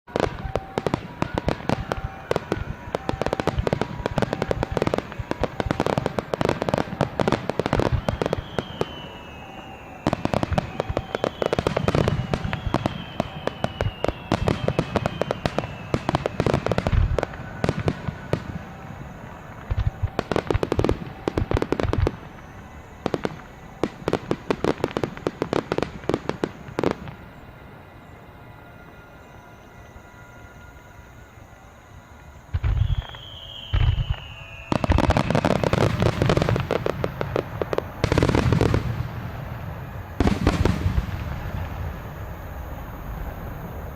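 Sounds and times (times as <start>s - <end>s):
fireworks bangs and crackling: 0.1s - 29.0s, 32.2s - 43.9s
descending firework whistles: 0.1s - 43.9s.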